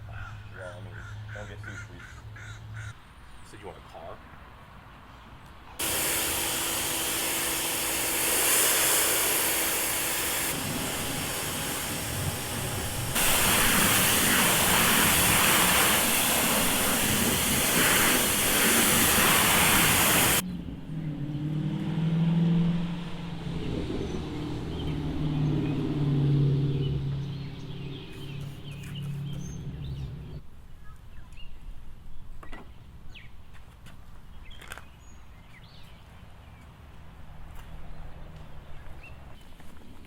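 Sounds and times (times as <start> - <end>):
pressure washer spraying: 5.8 - 20.4.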